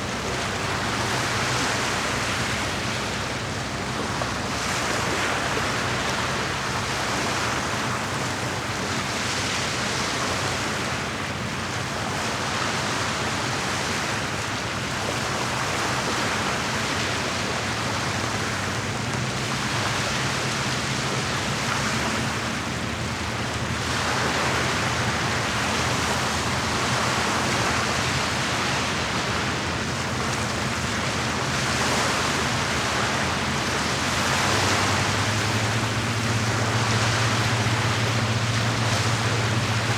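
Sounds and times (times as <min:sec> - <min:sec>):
lake water washing on shore: 0:00.0 - 0:39.9.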